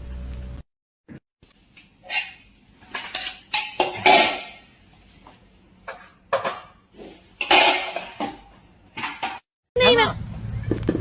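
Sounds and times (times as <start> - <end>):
household objects clattering: 2.0 - 4.8, 5.8 - 9.5.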